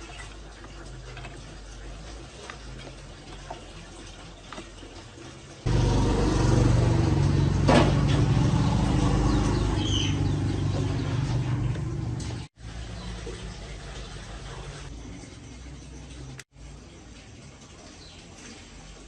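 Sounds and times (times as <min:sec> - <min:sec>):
motor-driven machine running: 0:05.7 - 0:12.5.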